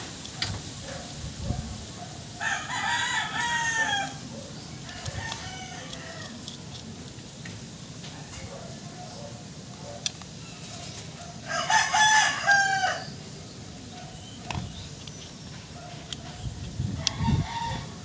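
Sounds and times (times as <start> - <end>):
rooster crowing: 2.4 - 6.6, 11.4 - 13.2, 17.0 - 18.0.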